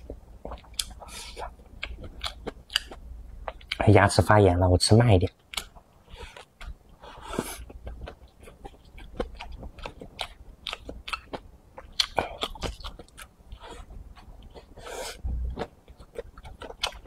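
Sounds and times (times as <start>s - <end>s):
chewing and crunching: 0.0s - 3.9s, 5.3s - 17.0s.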